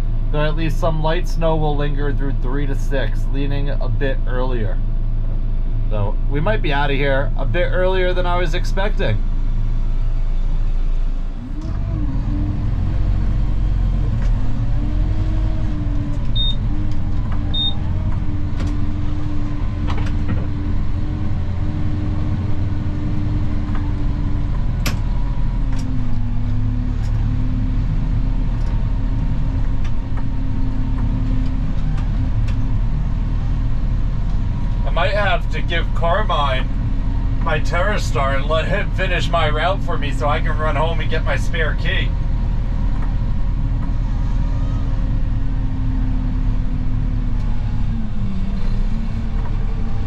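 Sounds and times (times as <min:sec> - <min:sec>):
snow plow engine running: 0:00.0 - 0:50.0.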